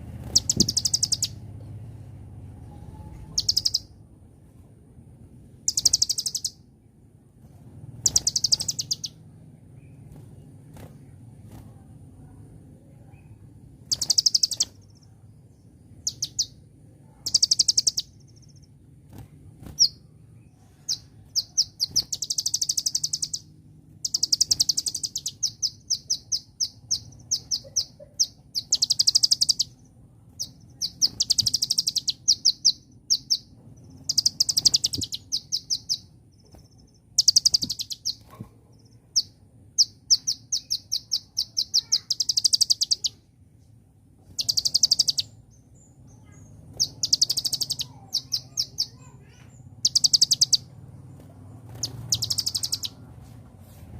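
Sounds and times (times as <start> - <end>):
bird singing trills and chips: 0.0 - 1.6, 2.7 - 4.0, 5.6 - 6.7, 7.9 - 11.3, 13.0 - 43.3, 44.2 - 53.2
faint low hum: 0.0 - 53.9.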